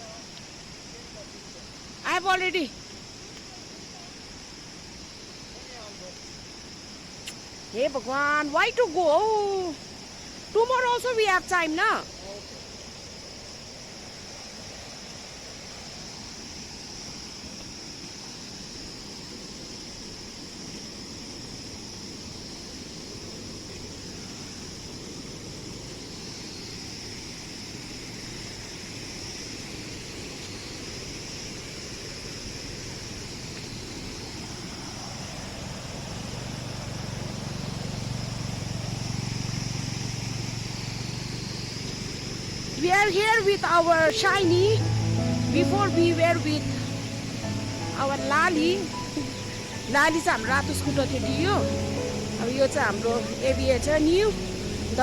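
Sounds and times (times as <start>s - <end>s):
river rushing: 29.0s - 55.0s
low engine hum: 34.8s - 42.8s, 43.7s - 55.0s
high-pitched drone: 44.1s - 55.0s.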